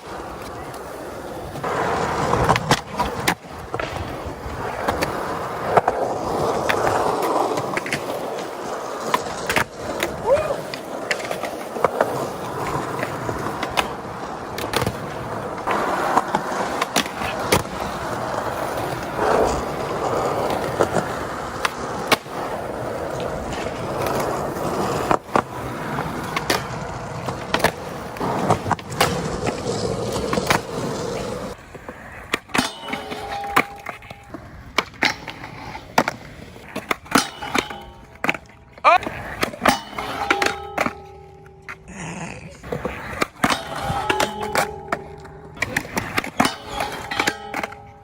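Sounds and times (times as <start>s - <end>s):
skateboard clacks: 0.0s - 48.0s
skateboard wheels rolling: 0.0s - 48.0s.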